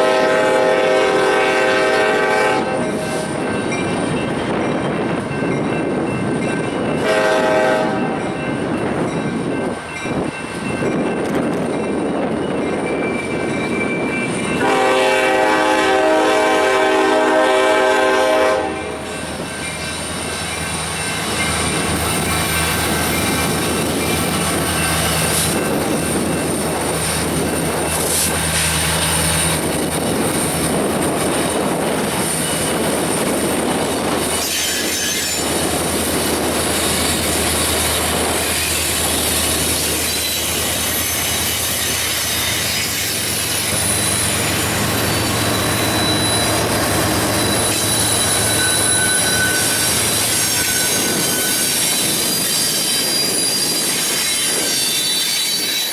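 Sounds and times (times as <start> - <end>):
freight train rumbling on rails: 0.0 - 55.9
high-pitched wheel squeal: 34.3 - 35.6, 38.5 - 55.9.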